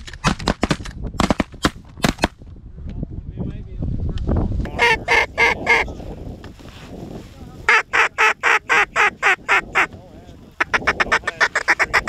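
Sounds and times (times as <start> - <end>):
shotgun fire: 0.2 - 2.4.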